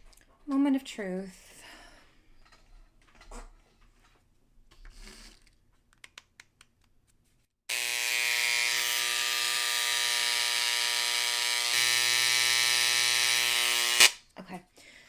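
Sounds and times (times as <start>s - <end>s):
electric engraver buzzing: 7.7s - 14.2s.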